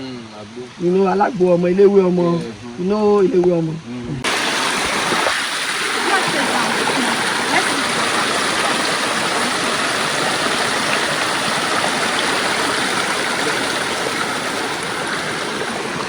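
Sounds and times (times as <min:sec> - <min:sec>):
rushing water: 0:04.2 - 0:16.0.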